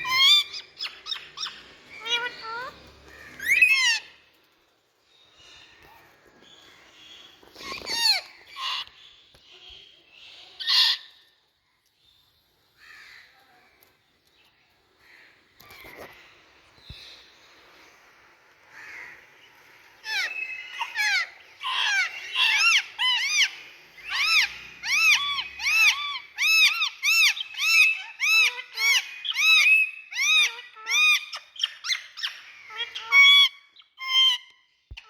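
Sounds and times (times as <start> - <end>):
parakeet squawking: 0.0 - 4.2, 7.6 - 8.9, 20.0 - 35.0.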